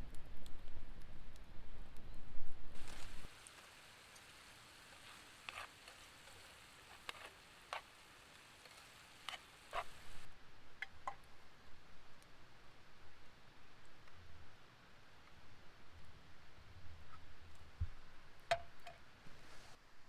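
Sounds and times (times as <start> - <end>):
wood fire crackling: 0.0 - 1.5, 2.7 - 10.3
faint hiss: 2.0 - 18.0, 19.2 - 20.0.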